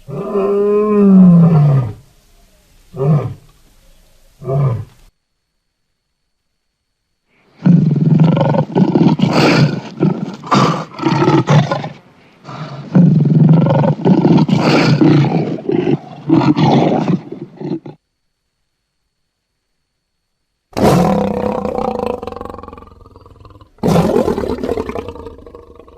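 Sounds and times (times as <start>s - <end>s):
lion roaring: 0.1s - 2.0s, 7.6s - 18.0s, 20.8s - 25.9s.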